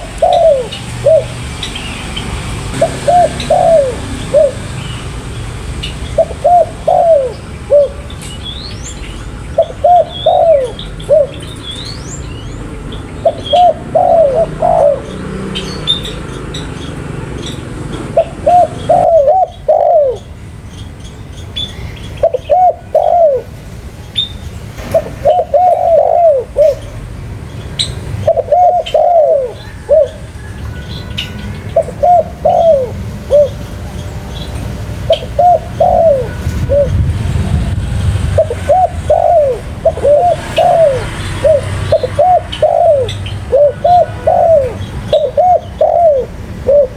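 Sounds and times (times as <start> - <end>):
dove cooing: 0.0 - 1.9, 2.6 - 4.8, 6.1 - 8.1, 9.6 - 11.6, 13.2 - 16.3, 17.9 - 20.4, 22.2 - 27.0, 28.2 - 33.7, 35.0 - 37.1, 38.2 - 46.9
small birds chirping: 0.0 - 37.8, 38.4 - 46.9.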